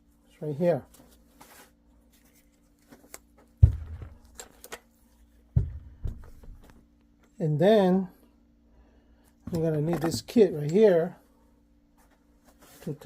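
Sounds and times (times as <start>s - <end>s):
dull knocks on workbench: 3.6s - 4.2s, 5.6s - 6.6s.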